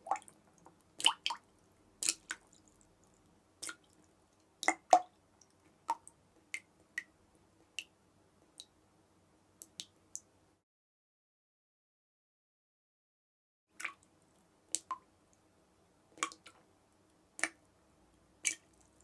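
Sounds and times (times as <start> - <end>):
water drops dripping: 0.0 - 7.1, 13.8 - 14.1, 16.2 - 16.6, 17.4 - 17.6
faint steady hum: 0.0 - 10.6, 13.8 - 19.0.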